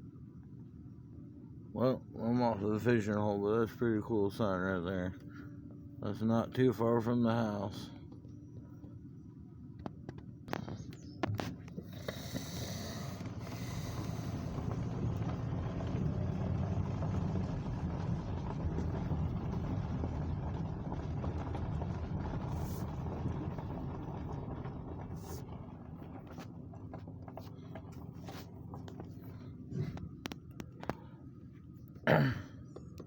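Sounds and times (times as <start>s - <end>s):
car engine and road rumble: 0.0s - 33.0s.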